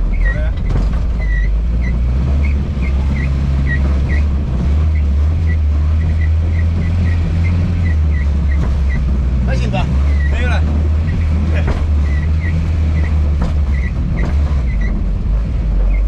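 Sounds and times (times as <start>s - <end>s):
engine running low drone: 0.0s - 16.0s
short high-pitched squeaks: 1.2s - 9.0s, 10.0s - 11.4s, 12.0s - 15.0s.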